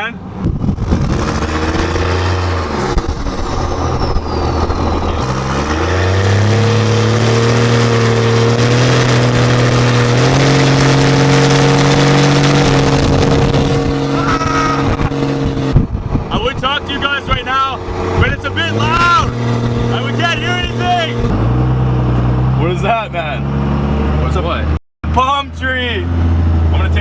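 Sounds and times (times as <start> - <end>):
pickup truck diesel engine: 0.1 - 27.0
high turbo whistle: 1.3 - 9.0.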